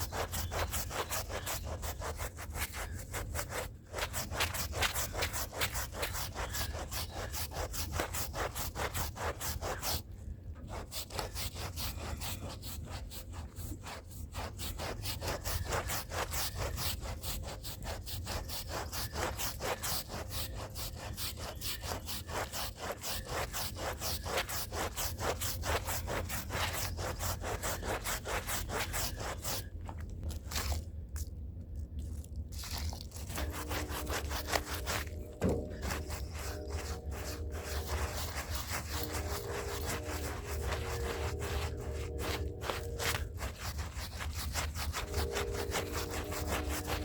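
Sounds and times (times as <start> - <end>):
hand brush scrubbing a rug: 0.0 - 30.8, 32.5 - 47.0.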